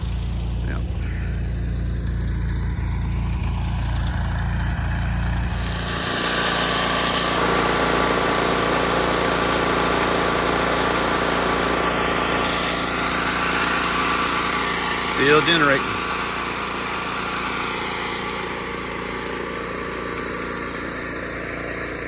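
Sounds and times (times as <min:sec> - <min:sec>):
low hum: 0:00.0 - 0:07.2
generator engine running: 0:00.0 - 0:22.0.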